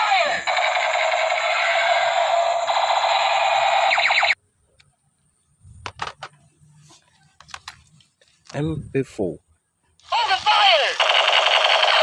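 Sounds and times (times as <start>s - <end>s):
toy gun electronic warbling: 0.0s - 4.4s, 10.8s - 12.0s.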